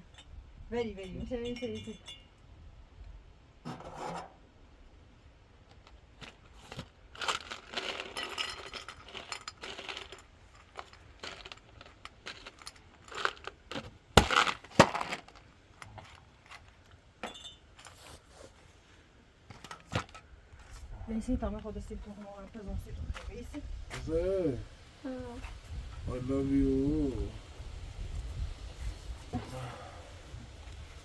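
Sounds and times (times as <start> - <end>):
clinking and handling noises: 5.6 - 18.5.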